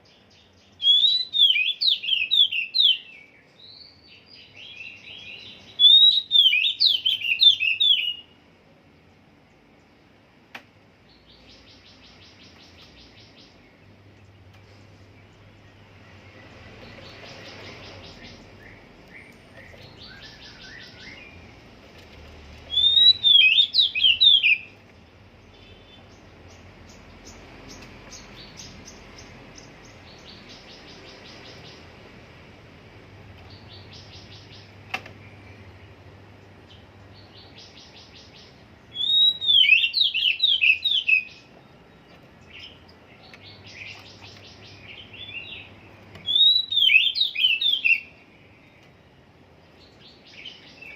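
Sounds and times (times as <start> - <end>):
bird whistled song: 0.1 - 8.4, 16.3 - 21.5, 22.7 - 24.8, 37.3 - 41.6, 43.4 - 48.8.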